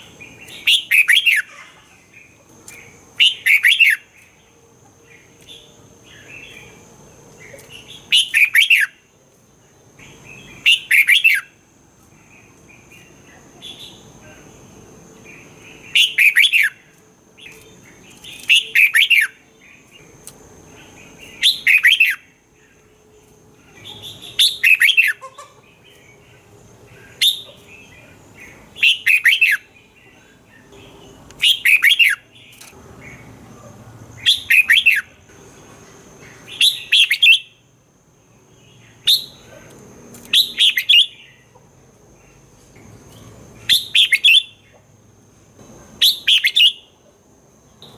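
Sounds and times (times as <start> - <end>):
soft bird chirps: 0.0 - 37.6.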